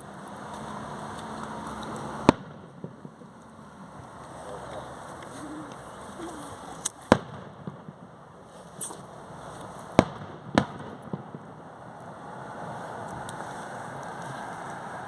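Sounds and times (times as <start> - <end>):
steady background hiss: 0.0 - 15.0
fireworks bangs: 2.0 - 5.0, 7.0 - 13.1.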